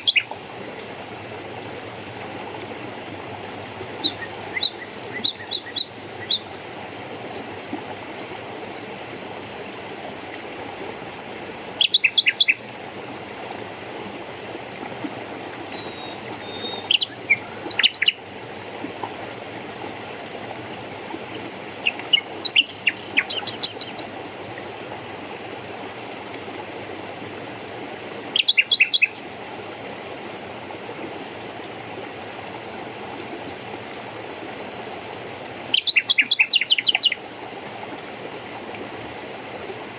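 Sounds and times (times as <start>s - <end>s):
songbird singing: 0.0s - 0.4s, 4.0s - 6.5s, 9.6s - 12.6s, 15.7s - 18.2s, 21.3s - 24.2s, 27.0s - 29.2s, 33.6s - 37.2s
running water rushing: 0.0s - 39.9s.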